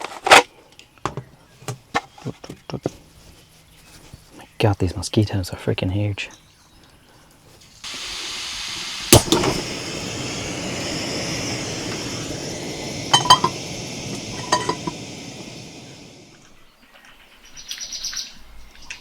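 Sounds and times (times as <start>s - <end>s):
burger sizzling in a pan: 7.6s - 16.5s.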